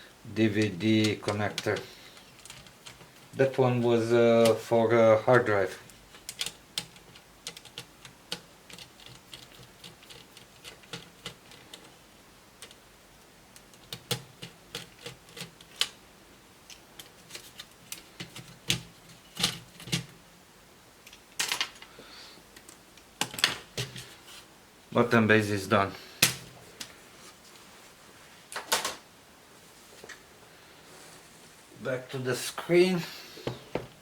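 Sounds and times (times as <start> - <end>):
plastic parts clicking and knocking: 0.6 - 3.6, 5.8 - 12.0, 13.5 - 16.0, 16.7 - 20.2, 21.0 - 21.9, 22.6 - 24.1.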